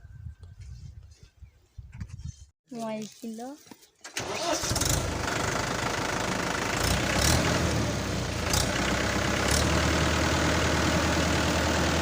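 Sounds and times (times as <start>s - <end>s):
tractor engine running: 4.0s - 12.0s.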